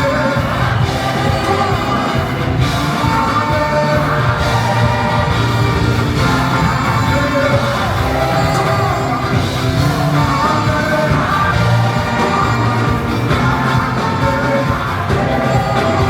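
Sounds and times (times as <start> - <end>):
live worship music with singing: 0.0 - 16.0.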